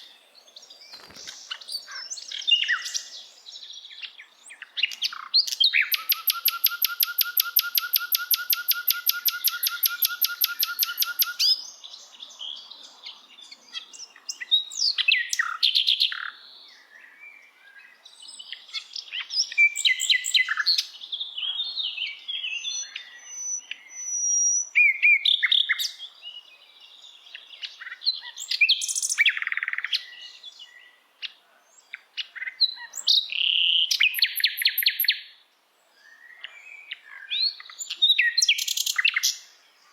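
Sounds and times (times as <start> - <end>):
birds chirping and whistling: 0.0 - 11.7, 18.3 - 26.1, 32.4 - 35.2
songbird fast trill: 4.9 - 11.6.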